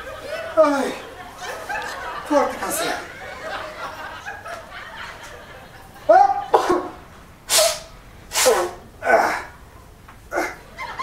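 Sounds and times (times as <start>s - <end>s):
man sneezing: 7.5s - 9.5s, 10.3s - 10.6s.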